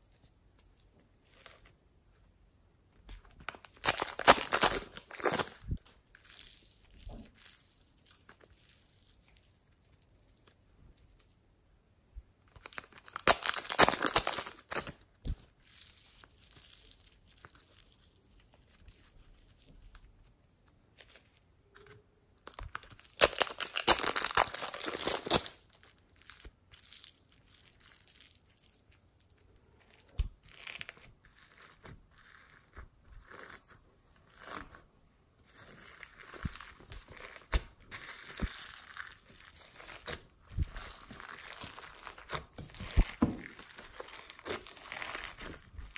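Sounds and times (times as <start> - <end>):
slime crackling and popping: 3.1 - 10.6, 12.5 - 20.2, 21.7 - 34.8, 35.4 - 45.9.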